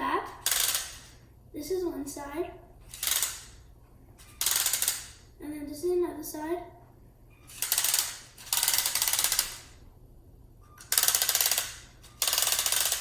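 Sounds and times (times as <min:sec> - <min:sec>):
plastic gears clattering: 0:10.8 - 0:13.0.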